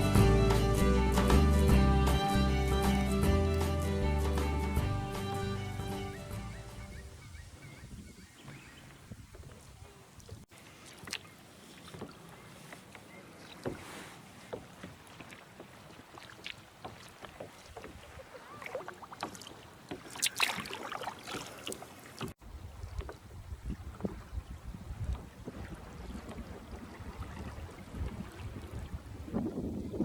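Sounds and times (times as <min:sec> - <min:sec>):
kayak paddle splashing: 0:00.0 - 0:07.7, 0:08.3 - 0:30.0
water dripping from paddle: 0:08.9 - 0:13.8, 0:14.4 - 0:23.3.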